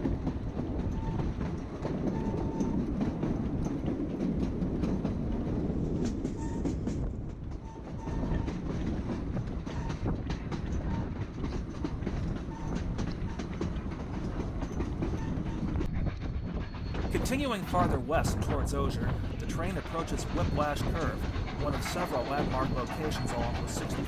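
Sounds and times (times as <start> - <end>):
train rumbling: 0.0 - 24.0
wheels clattering over rails: 16.8 - 24.0.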